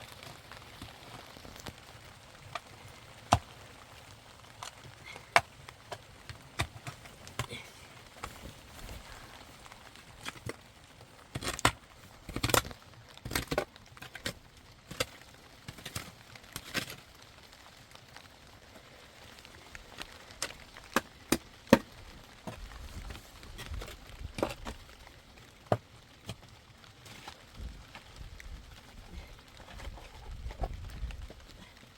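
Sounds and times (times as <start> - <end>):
sharp knocks and cracks: 4.5 - 9.1, 11.3 - 17.2, 19.7 - 28.2.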